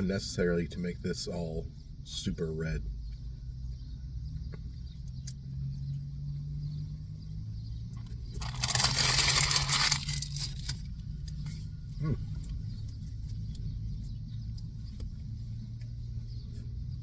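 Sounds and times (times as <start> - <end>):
paper wrapper rustling: 8.4 - 10.9.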